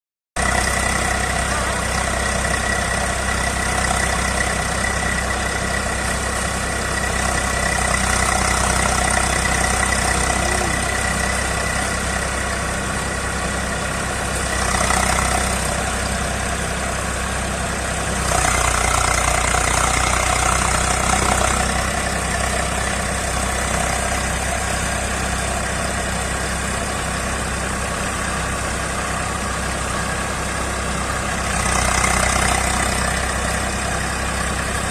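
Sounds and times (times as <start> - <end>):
tractor diesel engine running: 0.4 - 34.9.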